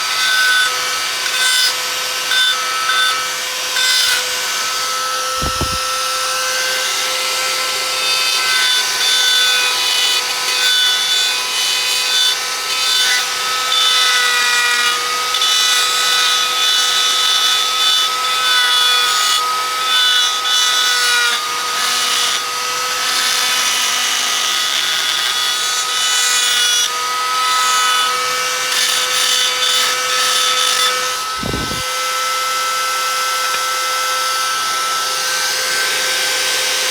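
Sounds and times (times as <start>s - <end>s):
power tool motor whine: 4.3s - 6.4s, 30.2s - 36.8s
wood scraping and rubbing: 5.4s - 6.1s, 31.2s - 31.9s.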